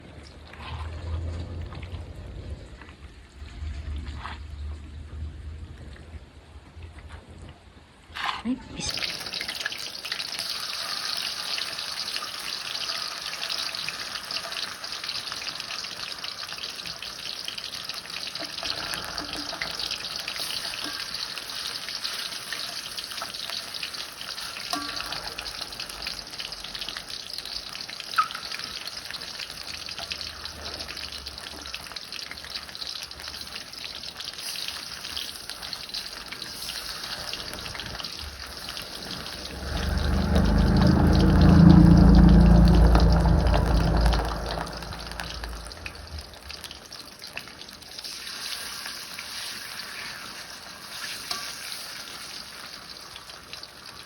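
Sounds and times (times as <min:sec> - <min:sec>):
chicken skin frying in oil: 0:08.8 - 0:54.0.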